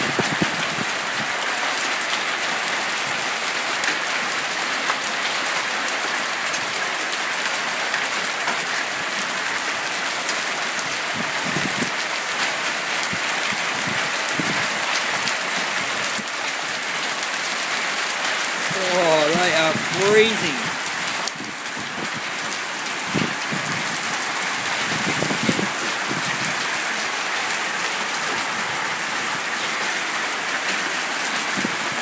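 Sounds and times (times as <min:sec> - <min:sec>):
heavy hail pattering: 0:07.8 - 0:32.0.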